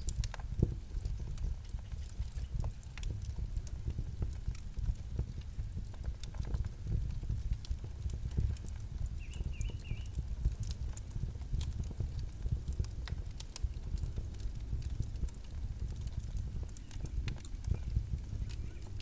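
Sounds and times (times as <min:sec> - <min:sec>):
campfire crackling: 0:00.0 - 0:19.0
bird chirp: 0:09.2 - 0:10.1, 0:18.5 - 0:19.0.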